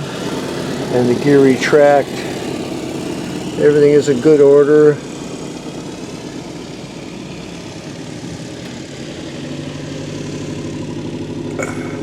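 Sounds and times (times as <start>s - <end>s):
engine running at low speed: 0.0s - 12.0s.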